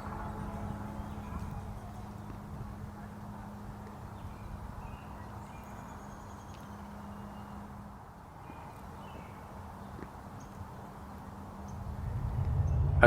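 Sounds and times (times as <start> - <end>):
steady low hum: 0.0 - 7.9, 11.3 - 13.0.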